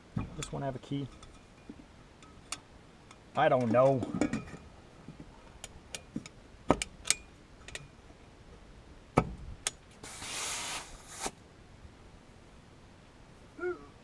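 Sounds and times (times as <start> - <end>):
short hiss: 10.0 - 11.4.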